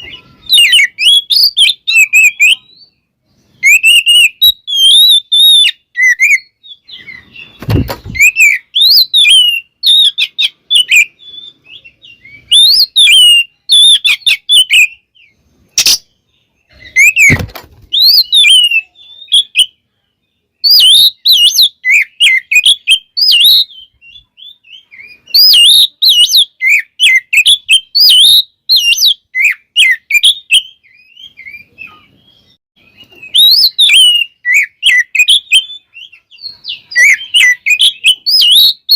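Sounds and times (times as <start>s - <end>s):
bird singing whistled phrases: 0.0s - 38.9s
dull thumps: 7.6s - 8.3s, 17.1s - 18.0s.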